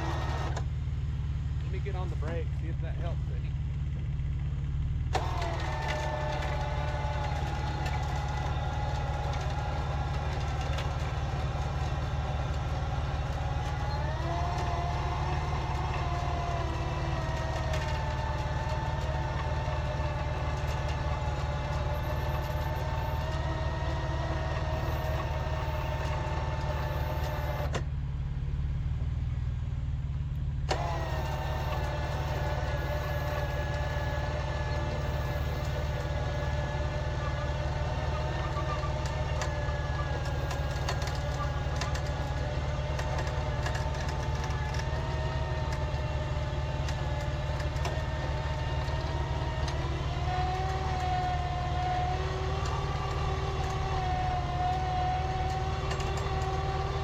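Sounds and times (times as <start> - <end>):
winch motor whine: 0.0 - 0.7, 3.9 - 27.8, 30.6 - 57.0
truck engine running: 0.0 - 57.0.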